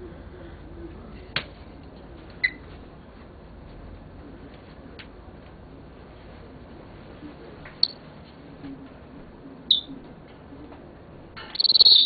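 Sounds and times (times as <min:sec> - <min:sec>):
parrot chirps: 0:09.7 - 0:09.9, 0:11.4 - 0:12.0.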